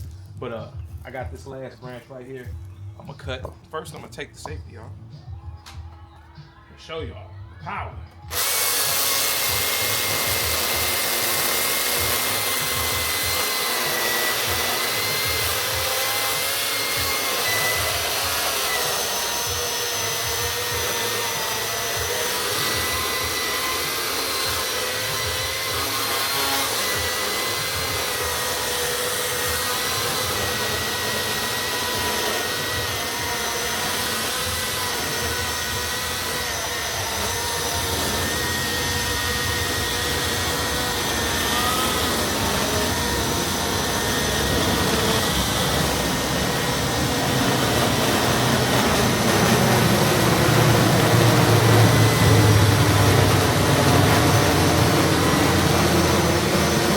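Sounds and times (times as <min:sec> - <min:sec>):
electric chainsaw running: 0:08.2 - 0:56.9.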